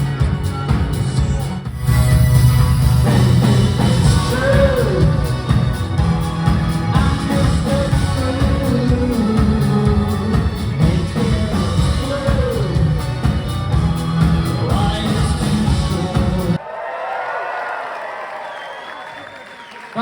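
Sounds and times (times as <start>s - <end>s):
live pop-rock band: 0.0s - 16.6s
lead vocal singing: 3.1s - 16.6s.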